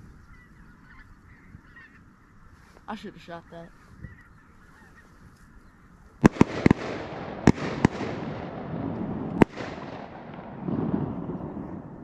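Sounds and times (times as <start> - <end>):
shotgun shots with echo: 6.2 - 11.8.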